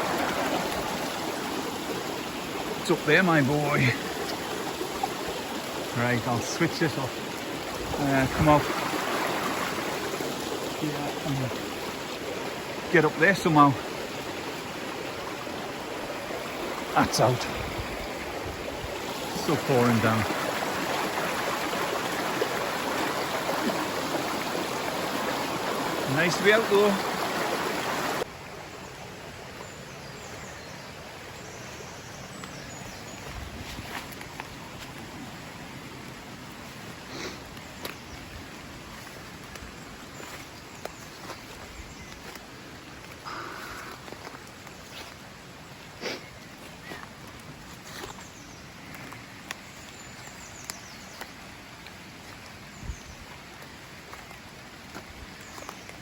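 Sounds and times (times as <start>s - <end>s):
heavy rain: 0.0s - 5.1s, 5.9s - 18.3s
outdoor ambient hiss: 0.0s - 56.0s
running water: 0.0s - 56.0s.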